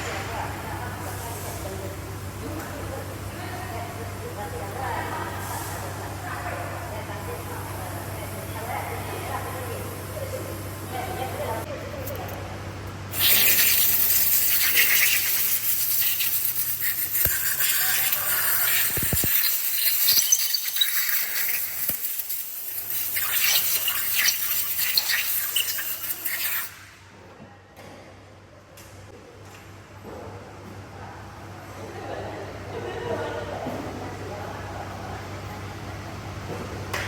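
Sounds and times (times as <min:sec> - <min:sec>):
loud spraying hiss: 0:13.1 - 0:26.7.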